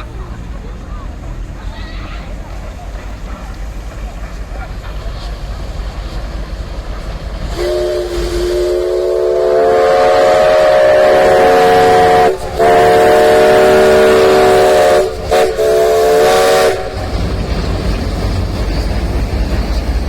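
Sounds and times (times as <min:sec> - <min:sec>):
steam whistle chime blasts: 0:07.6 - 0:17.0.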